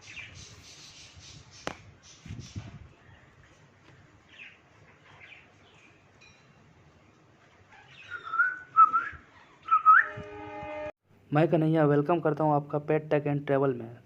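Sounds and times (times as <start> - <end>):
parrots chirping: 7.7 - 8.7
loud wavering whistle: 8.2 - 10.9.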